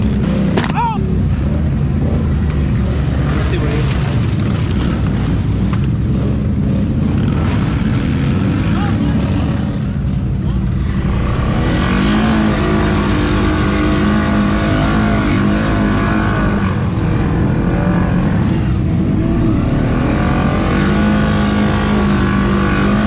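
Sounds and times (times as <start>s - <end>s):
atv engine revving: 0.0s - 23.0s.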